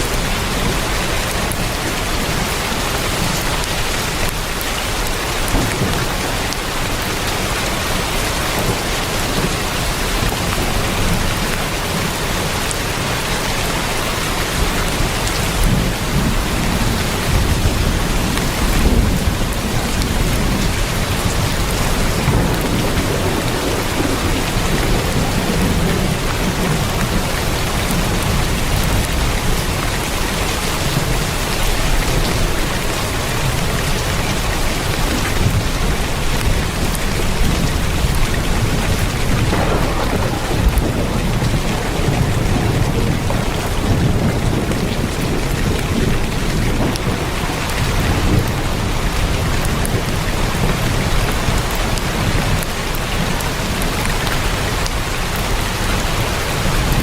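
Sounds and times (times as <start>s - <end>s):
heavy rain on a tin roof: 0.0s - 57.0s
low rumble: 38.8s - 44.0s.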